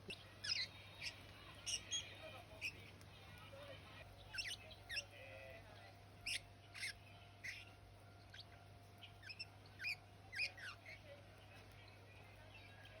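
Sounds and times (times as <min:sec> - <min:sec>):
budgerigar chirping: 0:00.1 - 0:02.8, 0:04.2 - 0:05.2, 0:06.2 - 0:11.0.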